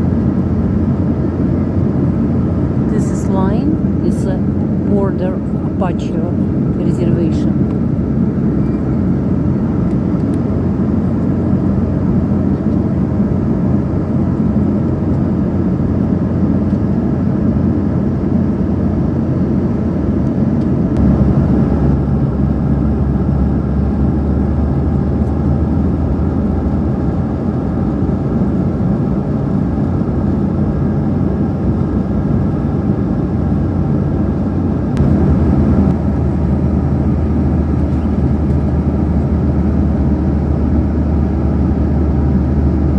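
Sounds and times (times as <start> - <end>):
vehicle interior rumble: 19.8 - 42.9.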